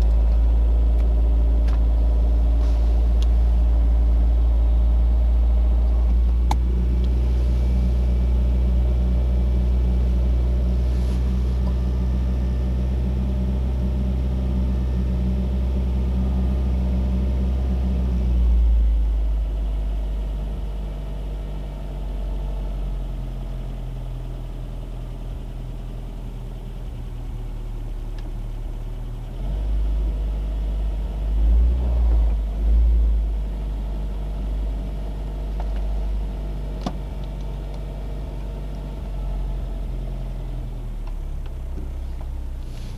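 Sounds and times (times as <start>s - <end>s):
car engine low rumble: 0.0s - 42.9s.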